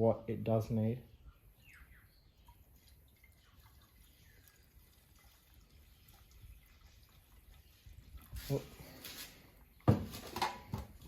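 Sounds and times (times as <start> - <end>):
fuel dripping and trickling: 1.9 - 9.8.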